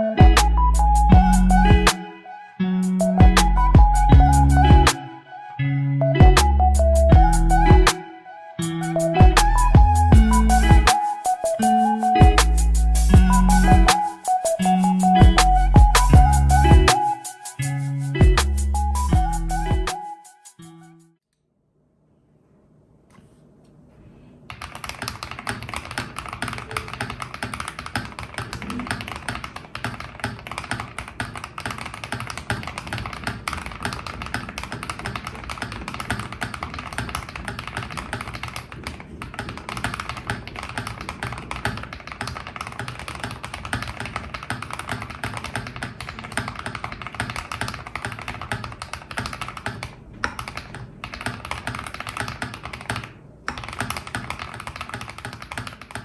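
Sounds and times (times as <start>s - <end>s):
fast typing on mechanical keyboard: 24.5s - 56.0s.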